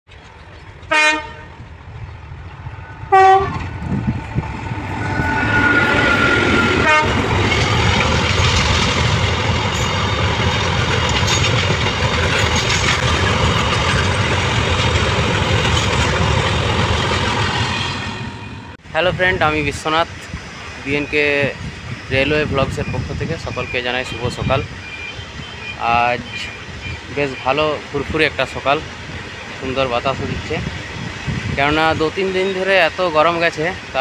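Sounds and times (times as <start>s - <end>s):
freight train wheels rumbling: 0.1s - 34.0s
train horn blasts: 0.9s - 1.6s, 3.1s - 3.7s, 5.1s - 7.3s.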